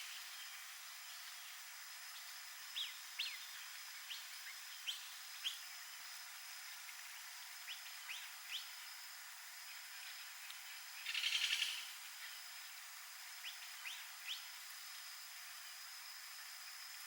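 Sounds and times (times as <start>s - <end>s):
small bird chirping: 7.7s - 8.9s, 11.0s - 12.4s, 13.4s - 14.6s.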